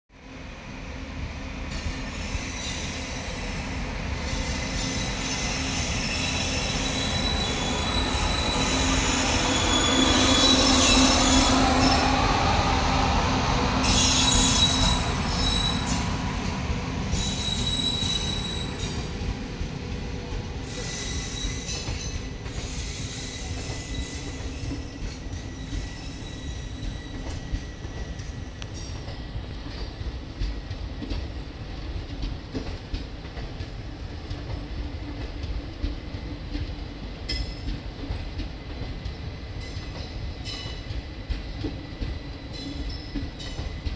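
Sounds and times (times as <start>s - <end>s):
electric locomotive passing: 0.2s - 43.9s
high wheel squeal: 4.2s - 12.3s, 13.8s - 16.1s, 17.1s - 19.0s, 20.7s - 27.8s.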